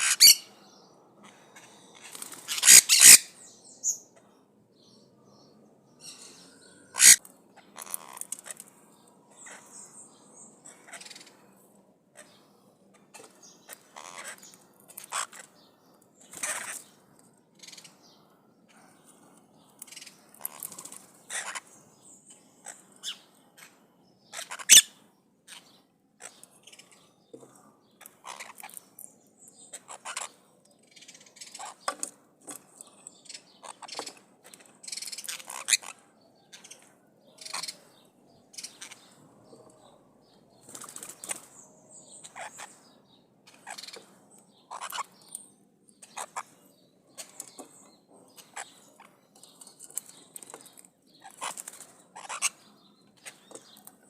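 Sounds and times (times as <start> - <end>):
parrots squawking: 0.0 - 0.5, 1.6 - 3.3, 6.1 - 8.6, 10.7 - 11.3, 13.7 - 15.5, 16.4 - 16.8, 21.3 - 21.7, 24.3 - 26.4, 28.2 - 28.8, 29.7 - 30.4, 34.9 - 36.0, 37.4 - 37.8, 42.2 - 42.7, 43.5 - 44.0, 44.7 - 45.2, 46.0 - 46.5, 51.2 - 52.6.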